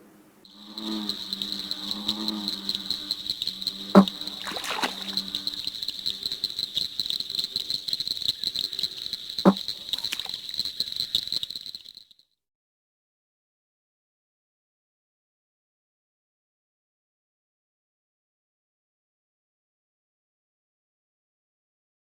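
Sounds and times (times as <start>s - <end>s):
loud low frog call: 0.0s - 12.1s
frog chorus pulsing: 0.0s - 12.2s.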